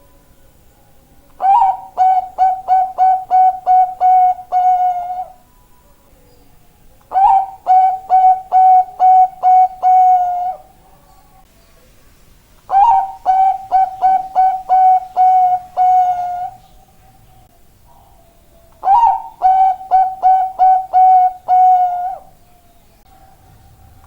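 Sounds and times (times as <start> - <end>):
dove cooing: 1.4 - 5.4, 7.1 - 10.8, 12.7 - 16.7, 17.9 - 22.4.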